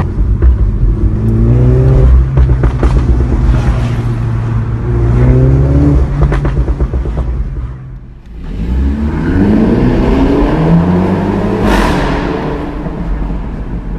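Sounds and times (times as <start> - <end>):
exhaust cracks: 0.0 - 4.1
car engine revving: 0.0 - 7.4, 8.2 - 13.9.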